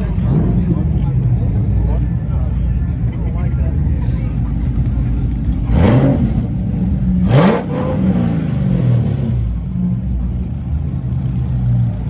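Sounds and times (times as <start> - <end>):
car engine idling: 3.6 - 12.0
car engine revving: 4.0 - 12.0.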